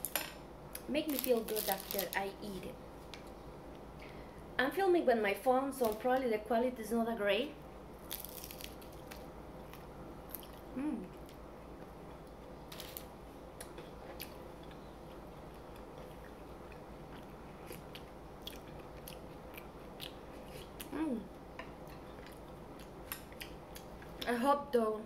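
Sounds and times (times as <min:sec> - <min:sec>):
crispy food crunch: 0:00.8 - 0:02.4, 0:08.0 - 0:11.4, 0:12.0 - 0:13.1, 0:14.2 - 0:21.0
person humming: 0:10.7 - 0:11.2, 0:20.9 - 0:21.3
chewing with wet clicks: 0:13.6 - 0:20.9, 0:21.6 - 0:24.3.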